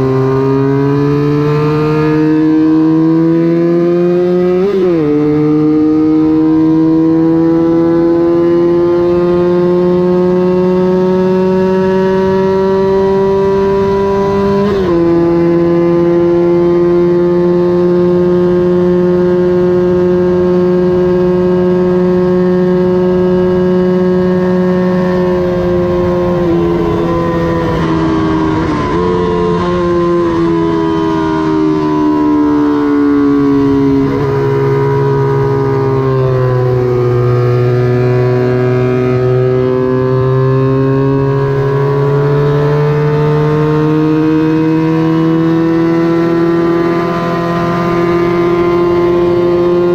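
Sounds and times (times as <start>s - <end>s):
racing motorcycle engine at high revs: 0.0s - 49.9s.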